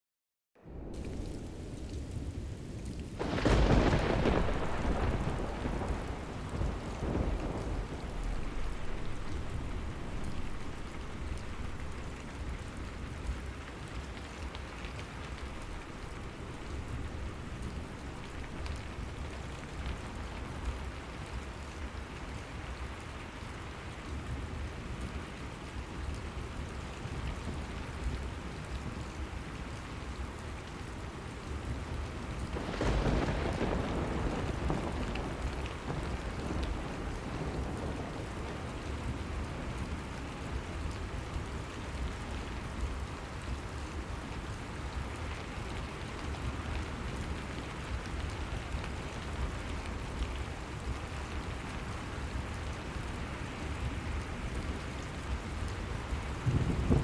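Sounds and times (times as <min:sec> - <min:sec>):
steady rain falling: 0:00.6 - 0:57.0.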